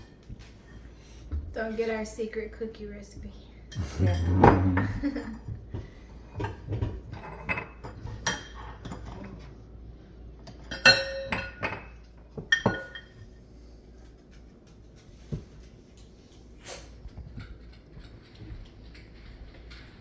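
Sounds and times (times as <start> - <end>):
dishes and utensils clinking: 3.7 - 9.7, 10.4 - 13.4.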